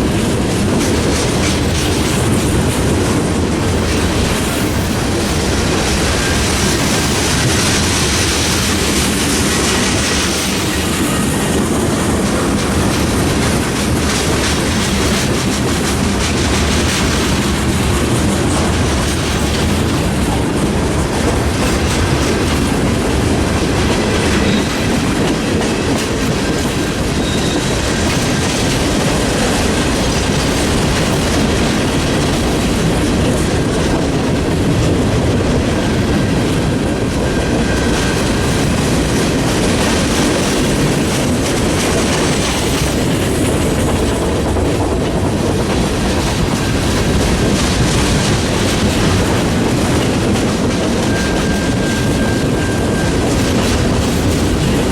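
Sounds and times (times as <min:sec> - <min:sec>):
freight train wheels rumbling: 0:00.0 - 0:54.9
wheel squeal: 0:27.1 - 0:27.8, 0:50.9 - 0:53.6.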